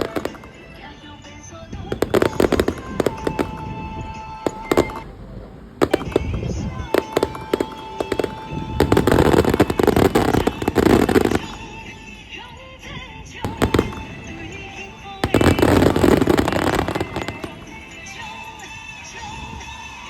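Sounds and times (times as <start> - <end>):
fireworks crackling bangs: 0.0 - 20.0
single firework bangs: 1.8 - 11.9, 13.5 - 19.4.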